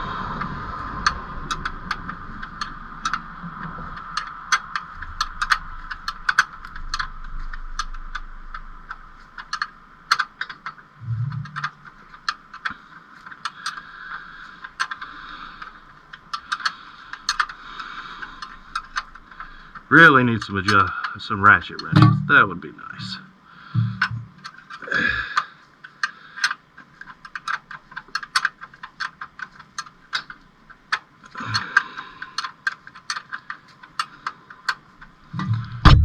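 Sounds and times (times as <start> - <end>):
steady background hum: 0.0 - 36.0
low thump: 11.0 - 11.7, 21.9 - 22.3, 23.8 - 24.4, 35.4 - 36.0
wrench clicking on a bolt: 25.4 - 34.8.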